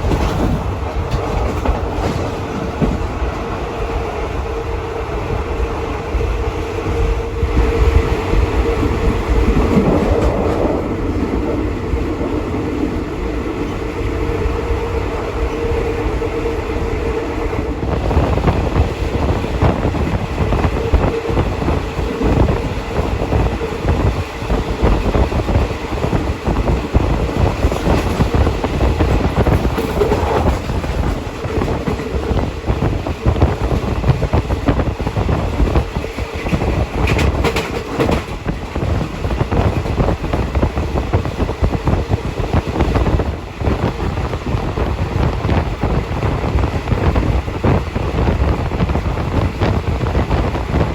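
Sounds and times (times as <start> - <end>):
wheels clattering over track: 0.0 - 3.6, 18.0 - 42.1
train rumble with hum: 0.0 - 50.9.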